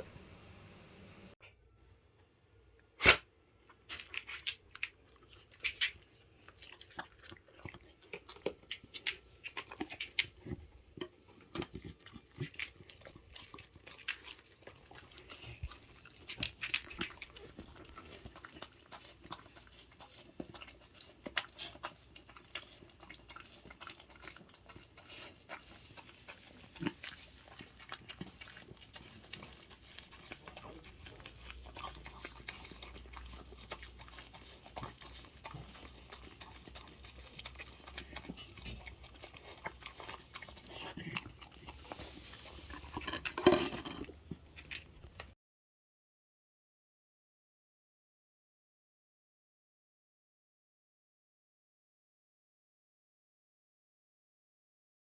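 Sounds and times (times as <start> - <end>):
dog chewing and gnawing: 3.9 - 45.3.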